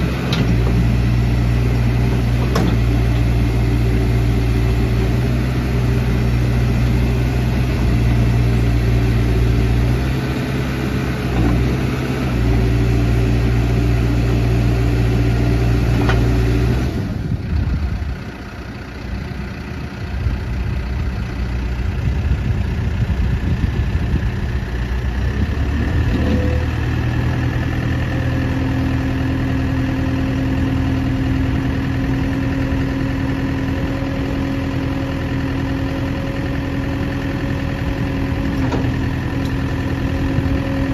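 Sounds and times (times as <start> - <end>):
backhoe diesel engine running: 0.0 - 40.9.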